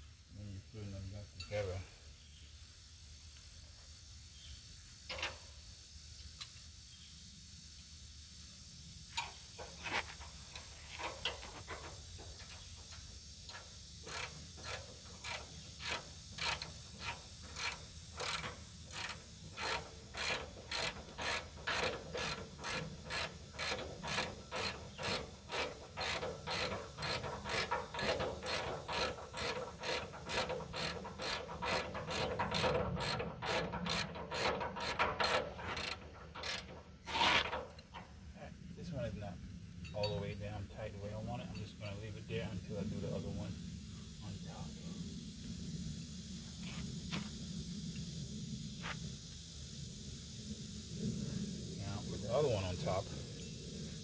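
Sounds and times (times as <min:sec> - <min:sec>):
ratchet wrench clicking: 0:12.0 - 0:37.9.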